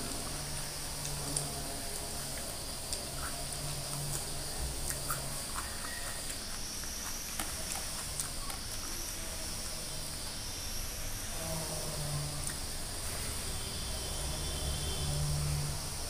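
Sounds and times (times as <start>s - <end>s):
steady hiss: 0.0s - 16.0s
chewing with wet mouth clicks: 0.9s - 9.0s.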